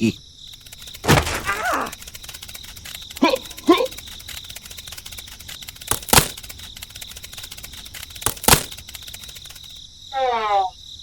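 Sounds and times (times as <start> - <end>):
high-pitched insect trill: 0.0 - 11.0
sharp double knocks: 1.0 - 2.0.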